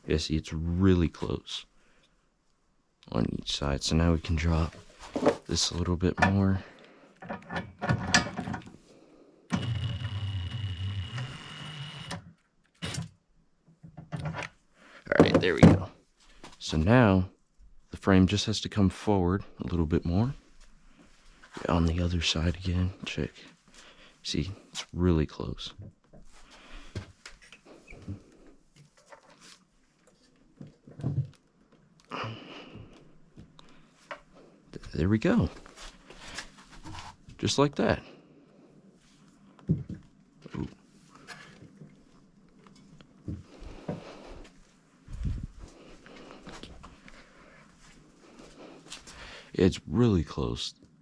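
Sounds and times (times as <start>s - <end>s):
parts clanking and rattling: 7.2s - 8.8s
electric lifting motor whining: 9.5s - 13.0s.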